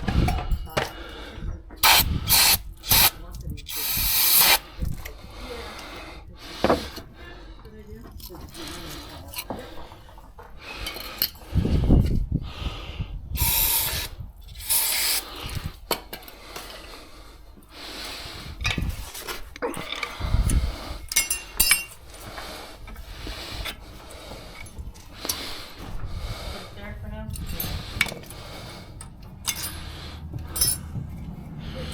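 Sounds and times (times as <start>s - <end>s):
short hissing rushes: 1.8s - 4.6s, 13.4s - 15.6s
metallic tool clinks: 21.1s - 22.0s, 29.0s - 29.8s, 30.5s - 31.0s.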